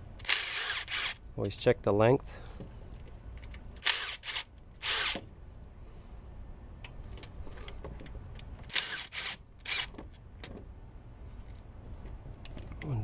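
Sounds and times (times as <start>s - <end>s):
power tool removing bolts: 0.2s - 1.2s, 3.8s - 5.3s, 8.6s - 10.0s.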